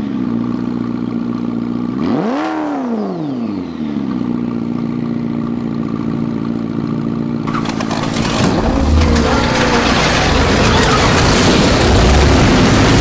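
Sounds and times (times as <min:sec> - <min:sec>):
car engine idling: 0:03.8 - 0:13.0.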